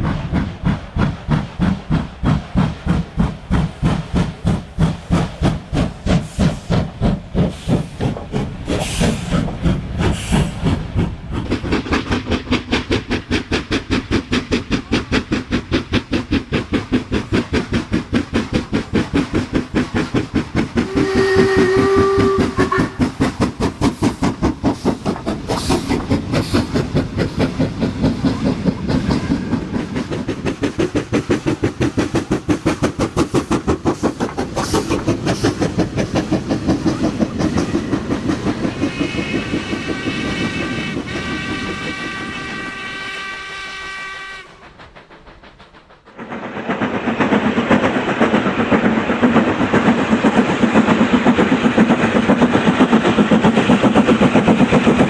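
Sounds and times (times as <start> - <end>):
rail clatter: 0.0 - 55.0
model train wheels clicking: 11.3 - 55.0
train horn tone: 20.9 - 23.0, 39.0 - 44.7.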